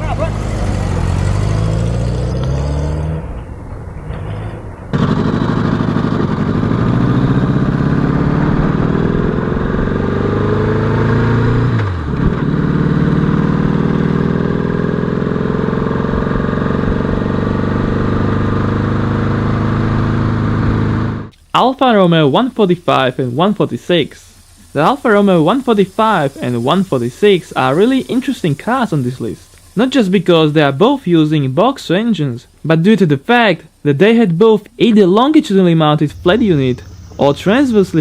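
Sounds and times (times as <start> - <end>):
motorcycle engine accelerating: 0.0 - 21.3, 35.7 - 38.0.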